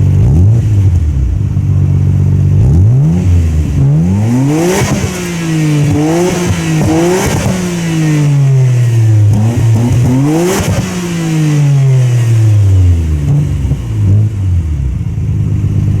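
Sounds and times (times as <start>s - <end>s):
car engine revving and idling: 0.0s - 16.0s.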